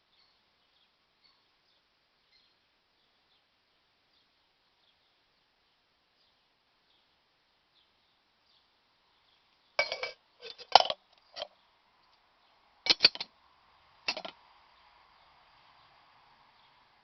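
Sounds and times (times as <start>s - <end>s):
metal kettle clinking: 9.8s - 11.5s, 12.9s - 13.3s, 14.1s - 14.3s.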